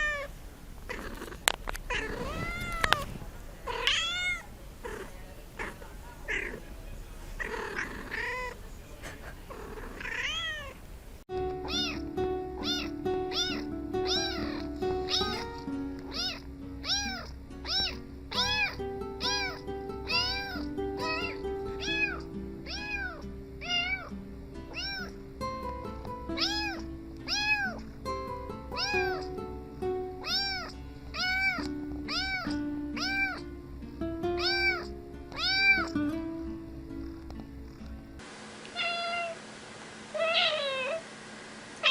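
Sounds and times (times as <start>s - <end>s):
kittens meowing: 0.9s - 6.6s, 7.4s - 8.6s, 9.5s - 10.8s, 11.6s - 24.1s, 24.7s - 25.2s, 26.4s - 27.9s, 28.7s - 29.4s, 30.2s - 33.5s, 34.4s - 36.0s, 38.7s - 39.4s
background music: 11.3s - 38.2s.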